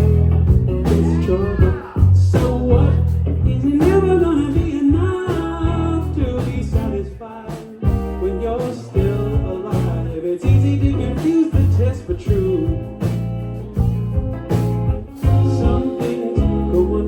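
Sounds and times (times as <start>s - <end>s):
person singing: 0.0s - 13.0s, 15.2s - 17.0s
bass: 0.0s - 17.0s
drums: 0.0s - 17.0s
electric guitar: 0.0s - 17.0s.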